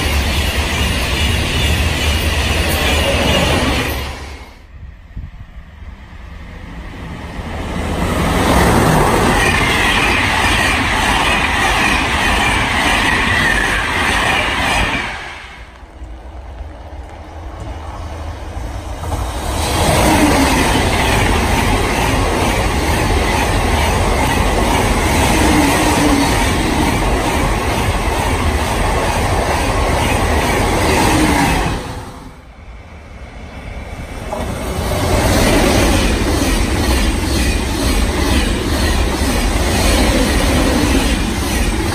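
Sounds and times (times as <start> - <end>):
train wheels squealing: 0.0 - 4.5, 9.1 - 15.6
high-speed train rushing by: 0.0 - 41.9.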